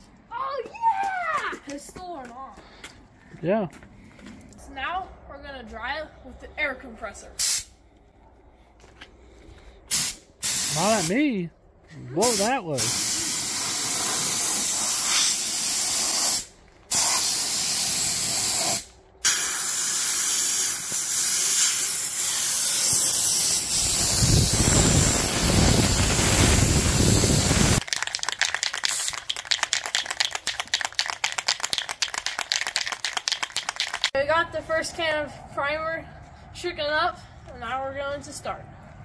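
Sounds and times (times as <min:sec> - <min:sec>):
compressed air hissing: 0:07.4 - 0:07.8, 0:09.9 - 0:11.2, 0:12.2 - 0:27.8
spray can rattling: 0:19.4 - 0:34.2
wind buffeting microphone: 0:23.8 - 0:27.8.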